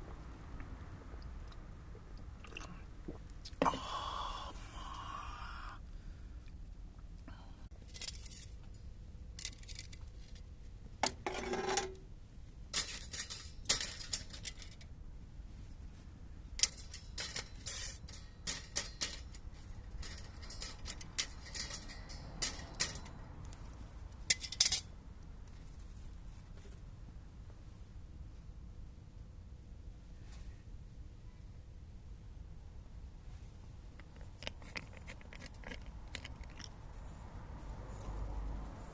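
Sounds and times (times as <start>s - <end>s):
utensils clinking and clattering: 12.7s - 14.8s, 16.6s - 23.2s.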